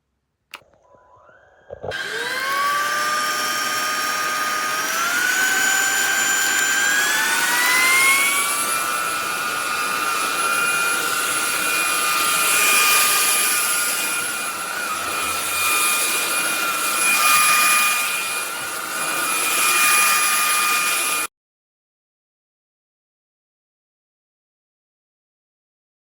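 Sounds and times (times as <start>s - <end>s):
vacuum motor whining: 0.5s - 21.3s.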